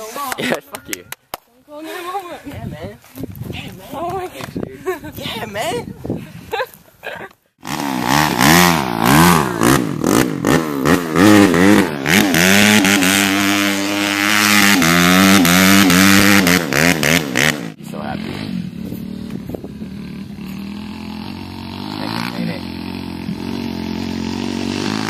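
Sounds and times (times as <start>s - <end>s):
dirt bike engine revving: 7.6s - 25.0s.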